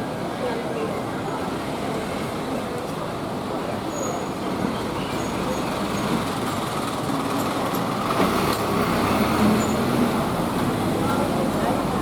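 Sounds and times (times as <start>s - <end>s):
street traffic hum: 0.0s - 12.0s.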